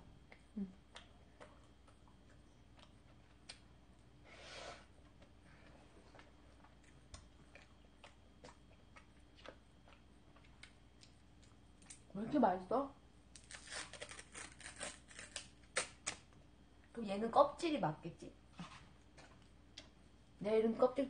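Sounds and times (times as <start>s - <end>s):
quiet chewing: 0.2s - 4.2s, 4.8s - 12.2s, 18.5s - 20.3s.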